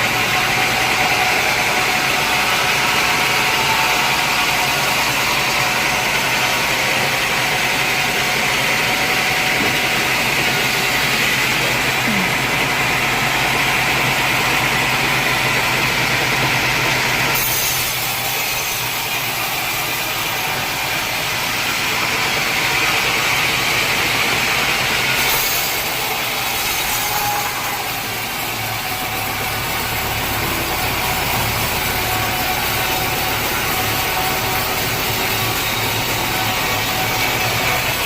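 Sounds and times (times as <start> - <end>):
engine humming: 0.0 - 17.1
saw cutting through log: 0.0 - 38.0.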